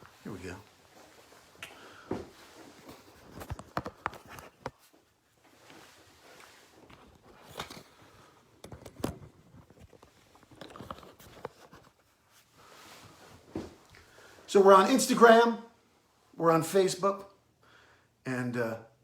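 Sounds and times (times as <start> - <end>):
clicks and rustles of handling gear: 1.0 - 14.1.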